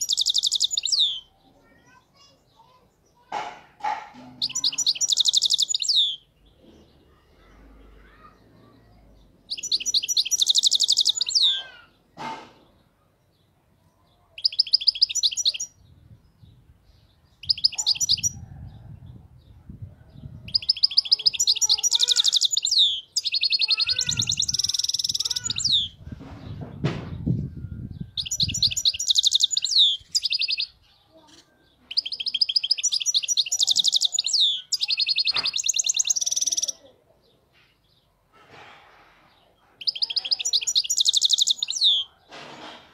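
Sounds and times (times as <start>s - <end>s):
goldfinch twittering song: 0.0s - 1.4s, 4.4s - 6.5s, 9.2s - 11.7s, 16.4s - 18.4s, 20.5s - 26.0s, 27.8s - 36.8s, 39.8s - 42.1s.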